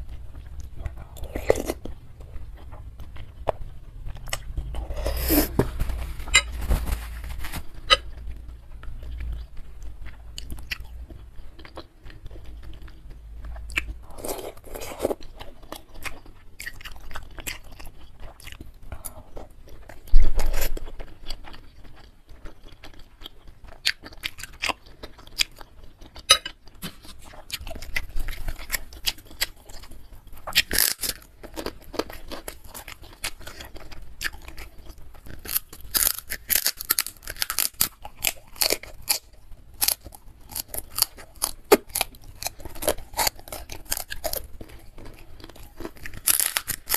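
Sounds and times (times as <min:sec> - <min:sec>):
chewing meatballs and noodles: 0:00.0 - 0:46.9
crunching cracker bites: 0:20.4 - 0:46.9.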